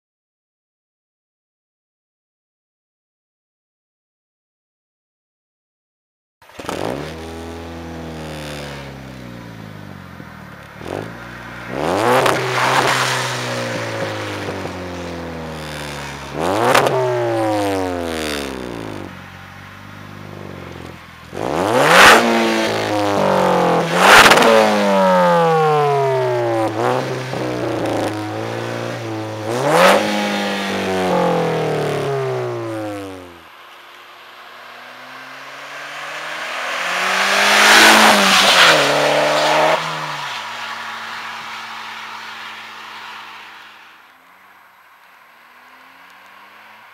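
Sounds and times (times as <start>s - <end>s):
car engine revving through exhaust: 6.5s - 33.5s, 34.4s - 43.5s.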